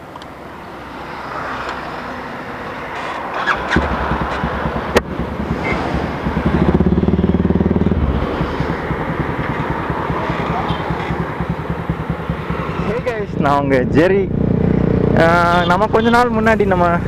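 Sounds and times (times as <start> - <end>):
motorcycle engine running: 3.4 - 16.2.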